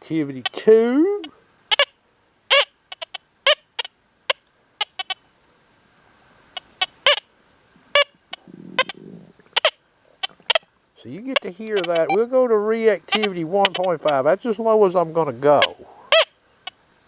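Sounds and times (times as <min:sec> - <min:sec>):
crickets chirring: 0:00.0 - 0:17.0
metal detector chirps: 0:11.2 - 0:12.3, 0:13.1 - 0:14.2.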